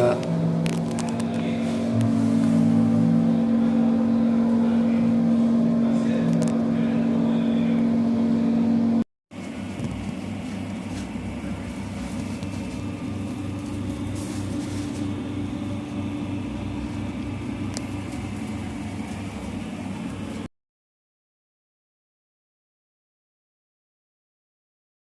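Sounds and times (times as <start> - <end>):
dirt bike engine: 0.0 - 9.0.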